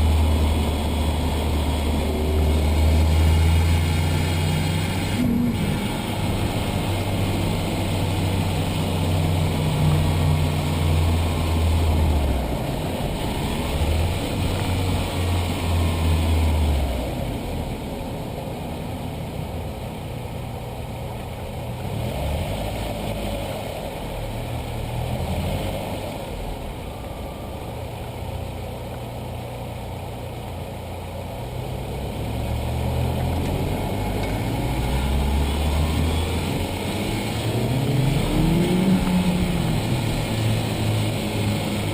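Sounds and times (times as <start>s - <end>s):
car engine running: 0.0s - 41.9s
faint gliding whines: 26.1s - 30.2s, 33.2s - 41.9s.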